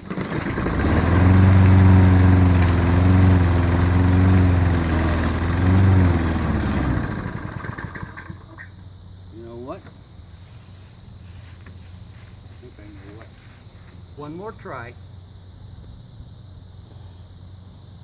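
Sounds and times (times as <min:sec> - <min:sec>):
lawnmower engine running: 0:00.0 - 0:08.9, 0:09.6 - 0:14.6.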